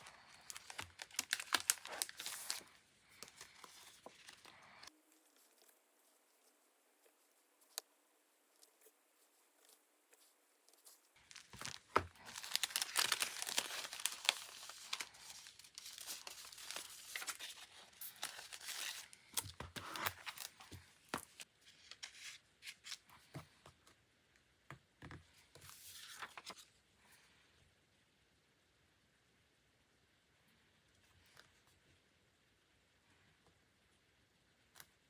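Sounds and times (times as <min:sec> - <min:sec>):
paper tearing and crinkling: 0:00.0 - 0:04.6, 0:11.2 - 0:20.6.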